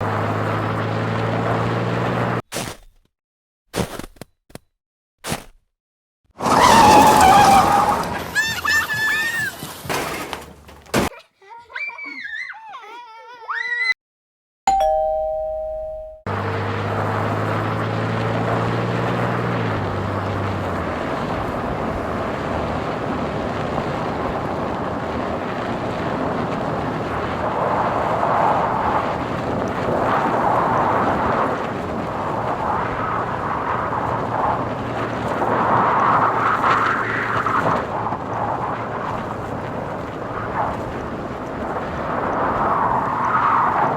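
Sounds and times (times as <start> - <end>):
car driving road noise: 0.0 - 2.4, 6.4 - 11.1, 15.6 - 43.9
two-note ding-dong chime: 14.7 - 16.3
low hum: 14.7 - 20.1.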